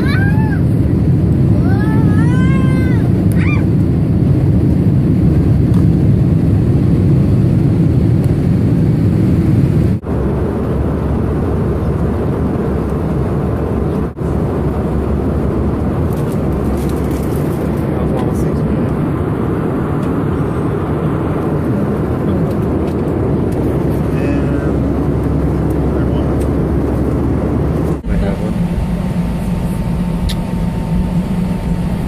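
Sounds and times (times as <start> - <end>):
moving vehicle rumble: 0.0 - 32.0.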